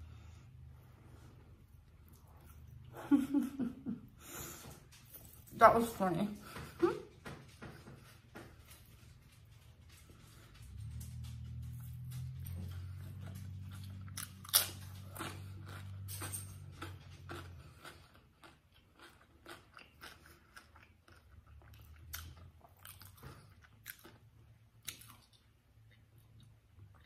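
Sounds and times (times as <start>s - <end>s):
person chewing food: 0.1s - 3.5s, 9.8s - 27.0s.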